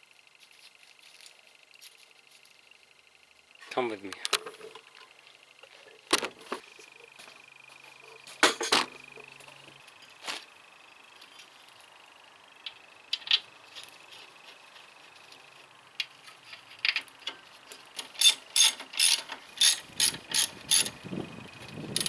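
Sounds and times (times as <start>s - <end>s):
ratchet wrench clicking: 18.0s - 21.0s.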